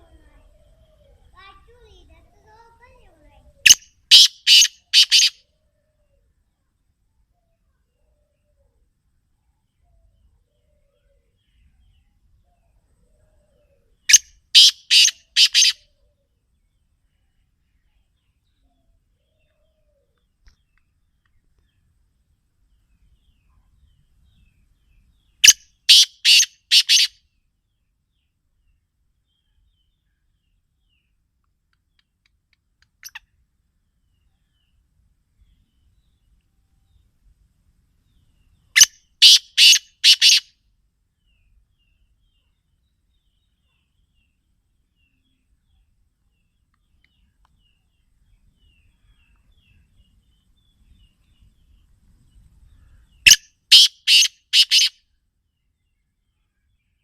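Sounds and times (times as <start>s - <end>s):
francolin calling: 3.5s - 5.4s, 13.5s - 16.0s, 25.4s - 27.2s, 38.8s - 40.5s, 52.7s - 55.0s
francolin calling harsh notes: 53.3s - 54.9s.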